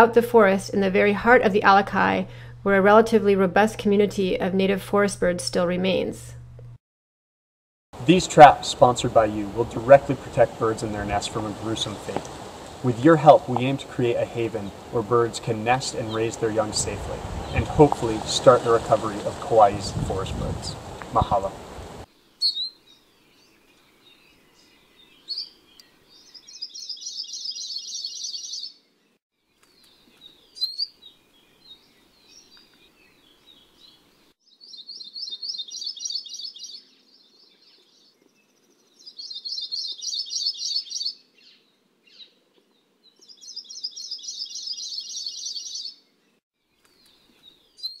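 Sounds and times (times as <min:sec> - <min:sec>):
songbird trilling: 0:08.2 - 0:22.8, 0:25.2 - 0:28.8, 0:29.8 - 0:31.1, 0:31.7 - 0:38.1, 0:39.0 - 0:42.4, 0:43.2 - 0:46.0.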